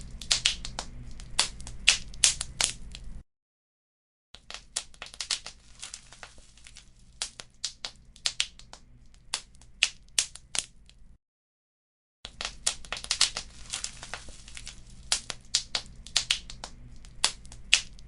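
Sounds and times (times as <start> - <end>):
wood fire crackling and popping: 0.0 - 3.2, 4.4 - 11.0, 12.3 - 18.0
faint low rumble: 12.6 - 18.0.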